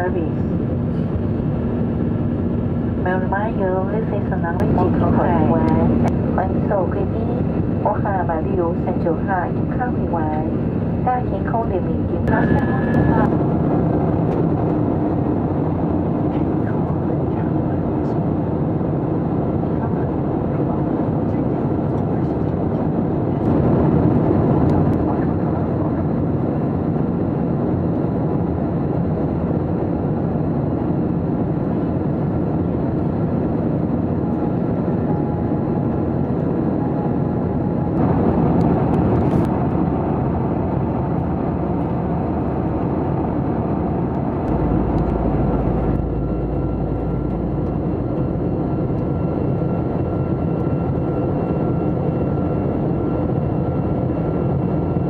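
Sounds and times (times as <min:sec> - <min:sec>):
jet engine cabin noise: 0:00.0 - 0:55.0
faint steady whine: 0:31.6 - 0:55.0.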